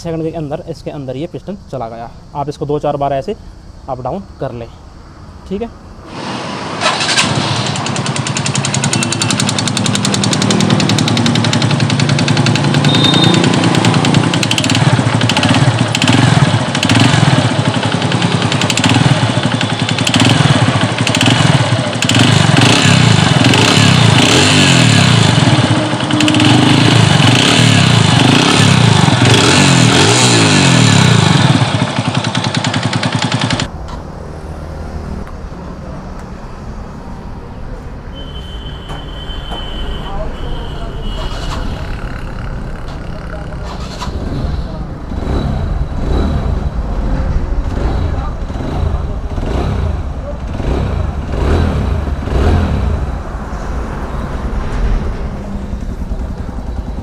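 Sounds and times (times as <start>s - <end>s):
motorcycle engine revving: 6.0s - 35.2s, 41.0s - 57.0s.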